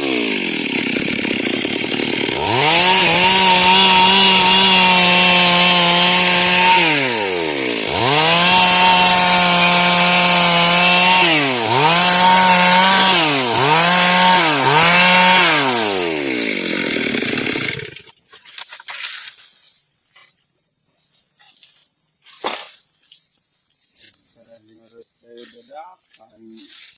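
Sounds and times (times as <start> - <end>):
chainsaw idling: 0.0 - 18.1
chainsaw cutting wood: 0.0 - 19.0.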